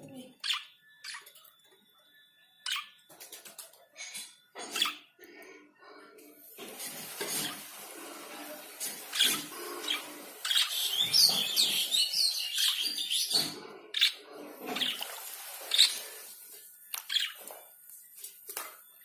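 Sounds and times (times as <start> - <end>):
budgerigar chirping: 9.2 - 15.0.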